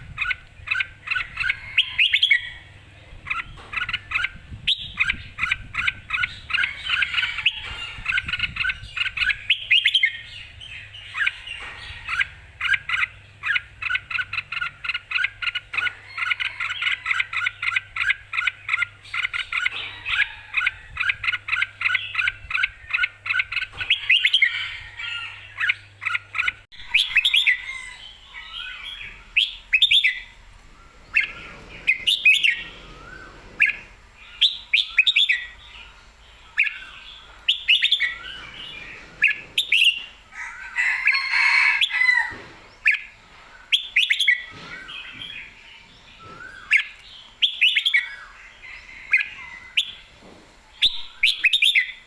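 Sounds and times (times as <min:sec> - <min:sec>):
bird singing: 0:00.0 - 0:52.0.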